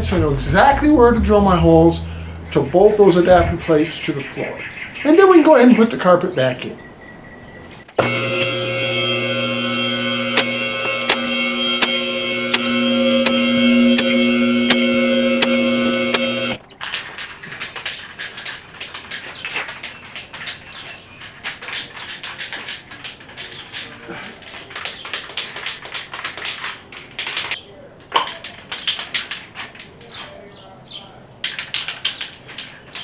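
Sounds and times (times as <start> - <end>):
background music: 0.0 - 3.9.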